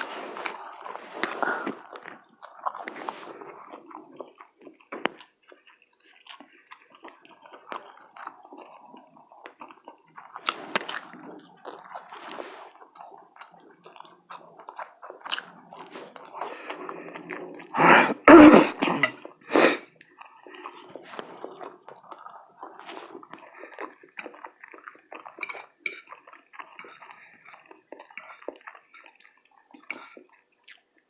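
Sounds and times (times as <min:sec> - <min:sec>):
mouth smacks and clicks: 0:00.0 - 0:31.0
person chewing: 0:00.0 - 0:31.0.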